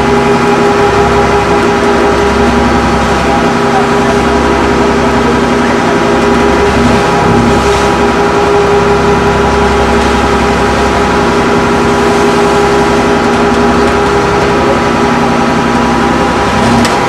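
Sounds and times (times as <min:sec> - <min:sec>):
large engine droning: 0:00.0 - 0:17.0.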